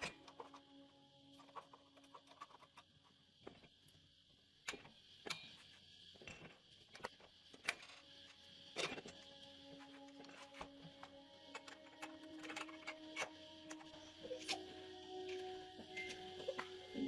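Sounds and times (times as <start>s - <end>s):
metal parts and tools clicking: 11.4s - 14.6s.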